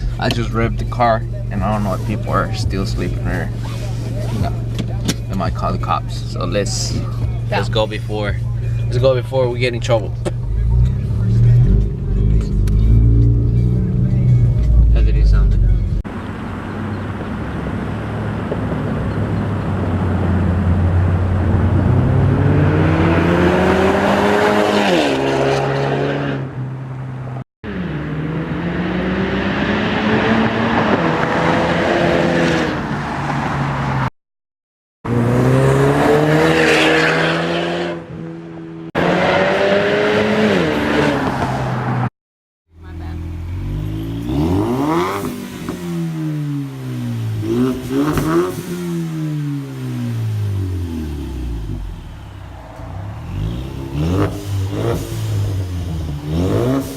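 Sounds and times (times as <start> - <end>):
car exhaust accelerating hard: 42.8 - 56.9.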